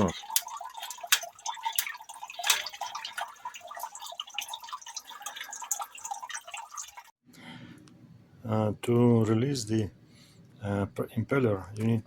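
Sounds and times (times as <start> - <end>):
water dripping and trickling: 0.0 - 7.2.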